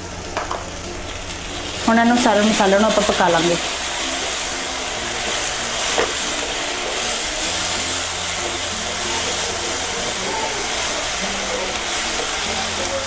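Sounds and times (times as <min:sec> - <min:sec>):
masala sizzling in oil: 0:00.0 - 0:13.0.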